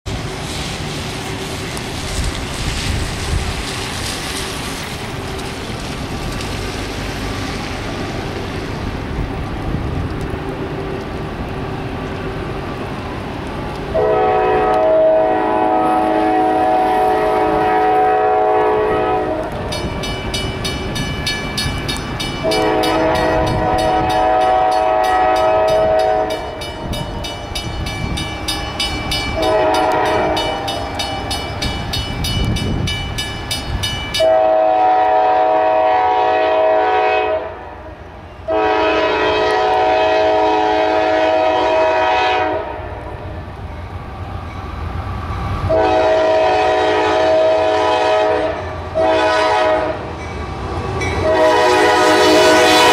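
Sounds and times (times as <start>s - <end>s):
rumble of passing train: 0.0s - 52.9s
locomotive air horn blasts: 13.9s - 19.7s, 22.4s - 27.0s, 29.3s - 31.3s, 34.2s - 43.2s, 45.7s - 50.1s, 51.2s - 52.9s.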